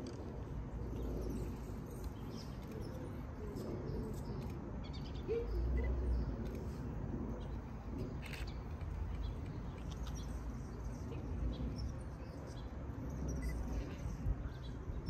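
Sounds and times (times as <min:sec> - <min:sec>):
faint bird chirps: 0:13.3 - 0:14.7.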